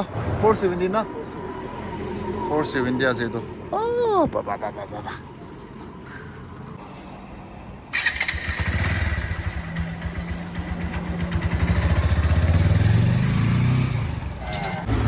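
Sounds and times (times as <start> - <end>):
motorcycle engine revving: 8.0 - 15.0.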